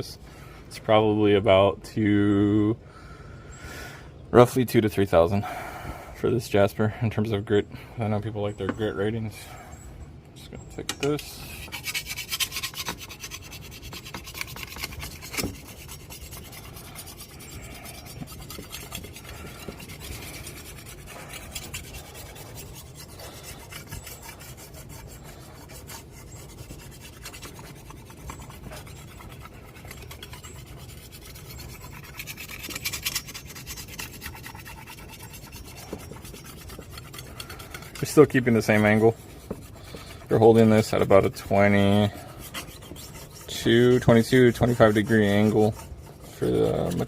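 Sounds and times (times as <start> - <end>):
sharpening stone scraping steel blade: 10.8 - 47.0.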